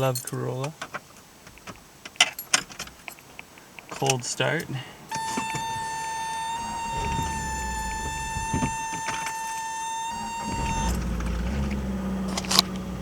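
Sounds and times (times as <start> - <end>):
dashboard warning buzzer: 5.1 - 12.6
car engine starting and idling: 5.1 - 13.0.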